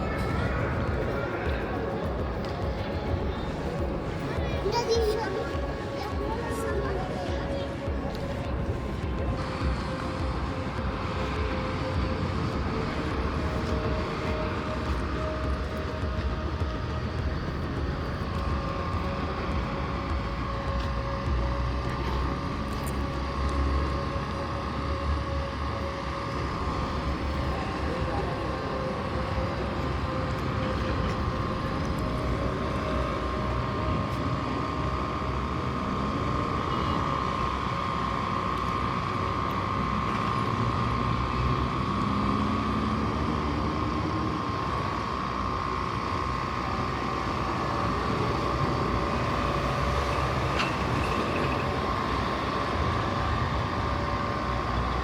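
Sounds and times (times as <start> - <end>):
constant machine hum: 0.0 - 55.0
engine note rising in pitch: 0.0 - 55.0
vehicle engines: 0.0 - 55.0.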